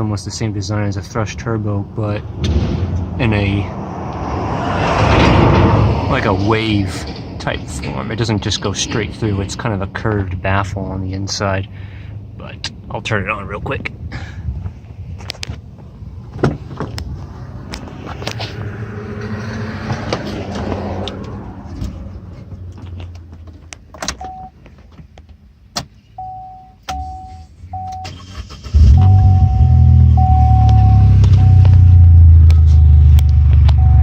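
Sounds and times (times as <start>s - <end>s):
dashboard warning chime: 24.2s - 24.6s, 26.2s - 28.2s, 28.8s - 34.0s.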